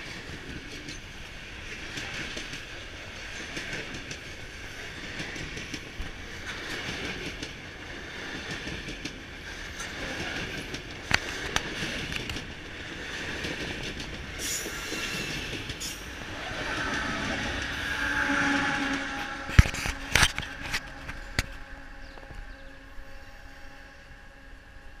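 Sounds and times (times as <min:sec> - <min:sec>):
freight train wheels clattering: 0:00.0 - 0:22.2
train wheel squeal: 0:14.4 - 0:23.8.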